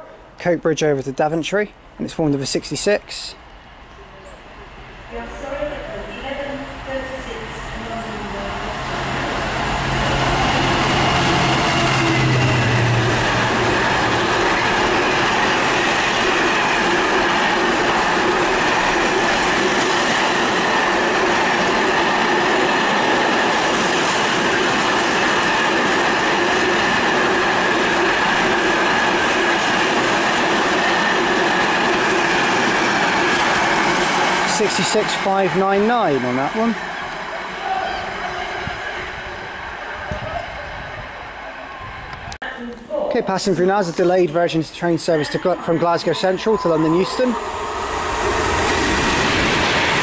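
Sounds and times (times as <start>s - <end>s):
diesel locomotive engine drone: 0.0s - 42.4s, 43.6s - 50.0s.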